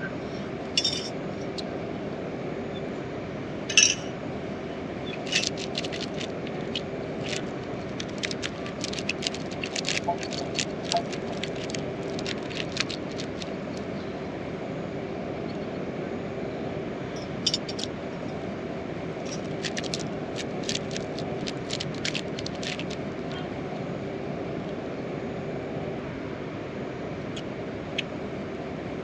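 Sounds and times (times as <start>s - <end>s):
raindrops tapping nearby: 5.3s - 13.5s, 19.3s - 23.0s.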